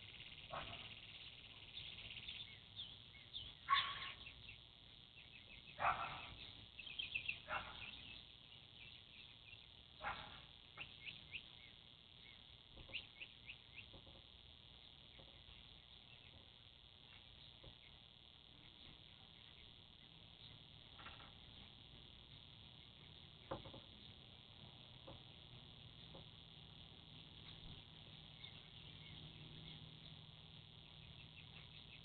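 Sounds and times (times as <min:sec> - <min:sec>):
faint high hiss: 0:00.0 - 0:32.0
songbirds chirping: 0:00.0 - 0:32.0
dog barking: 0:00.5 - 0:01.0, 0:03.7 - 0:04.2, 0:05.8 - 0:06.4, 0:07.4 - 0:08.0, 0:10.0 - 0:10.5.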